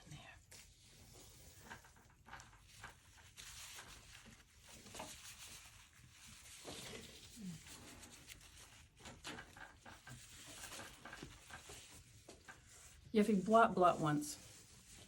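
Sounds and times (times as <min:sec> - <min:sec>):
paintbrush brushing on paper: 0:00.6 - 0:09.0, 0:09.9 - 0:15.0.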